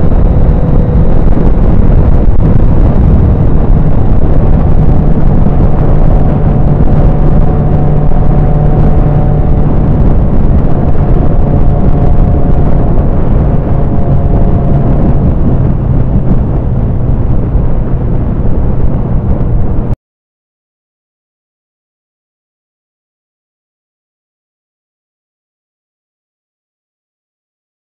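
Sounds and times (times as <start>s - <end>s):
motorcycle engine drone: 0.0s - 20.0s
wind rushing over microphone: 0.0s - 20.0s.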